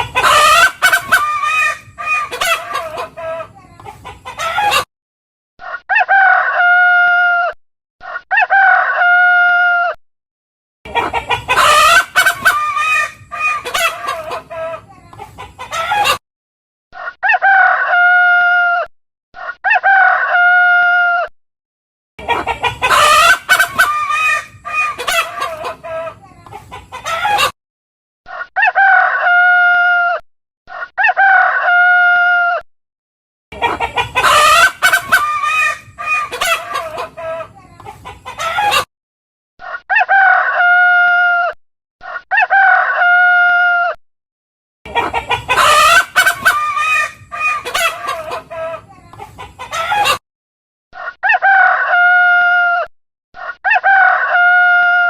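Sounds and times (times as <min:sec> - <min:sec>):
chickens clucking: 0:00.0 - 0:04.9, 0:10.9 - 0:16.2, 0:22.2 - 0:27.6, 0:33.5 - 0:38.9, 0:44.9 - 0:50.2.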